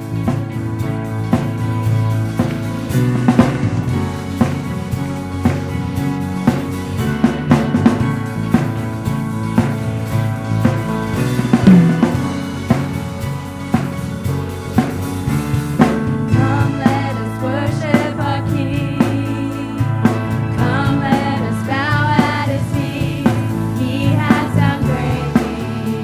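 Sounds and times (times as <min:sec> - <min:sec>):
bass and keyboard chords: 0:00.0 - 0:26.0
drum kit beat: 0:00.0 - 0:26.0
person singing: 0:16.3 - 0:19.9, 0:20.6 - 0:26.0.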